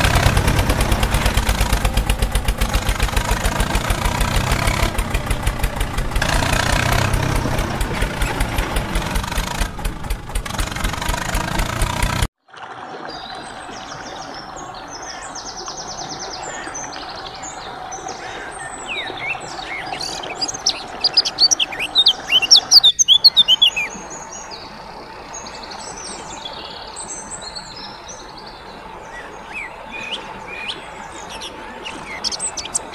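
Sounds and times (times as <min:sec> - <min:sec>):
small birds chirping: 0:13.1 - 0:32.9.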